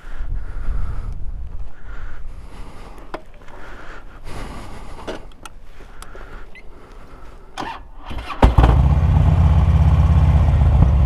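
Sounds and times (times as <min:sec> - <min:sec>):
motorcycle engine starting and idling: 0:07.6 - 0:11.0.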